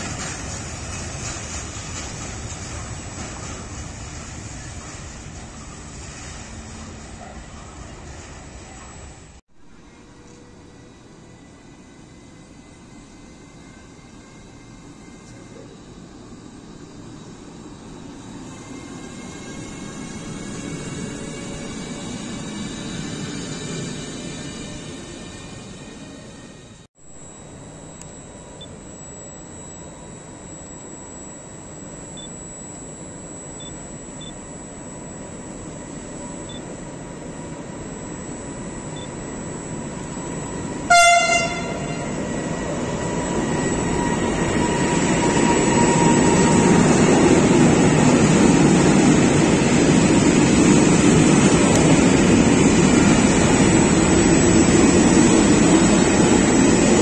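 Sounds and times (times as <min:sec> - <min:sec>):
train wheels rumbling on rail: 0:00.0 - 0:16.4, 0:39.0 - 0:57.0
locomotive horn blast: 0:40.8 - 0:42.3.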